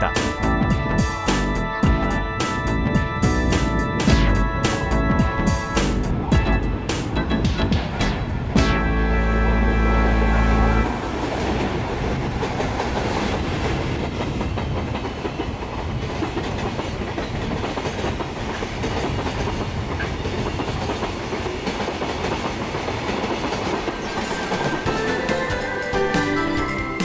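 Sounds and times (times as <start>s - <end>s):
rail joints clickety-clack: 0.0s - 8.6s, 10.8s - 27.0s
train wheels rumbling on rail: 0.0s - 8.6s, 9.5s - 27.0s.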